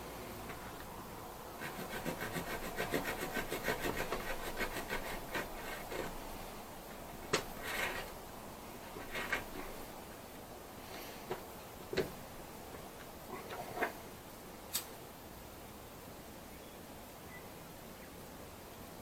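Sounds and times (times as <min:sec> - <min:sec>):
rope being rubbed by hand: 0:01.6 - 0:06.6, 0:07.3 - 0:08.2, 0:08.9 - 0:09.9.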